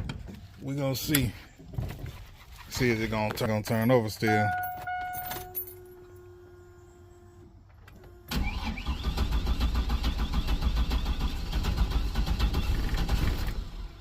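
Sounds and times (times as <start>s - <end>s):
faint steady hum: 3.0s - 9.0s
engine cranking on starter: 7.9s - 14.0s.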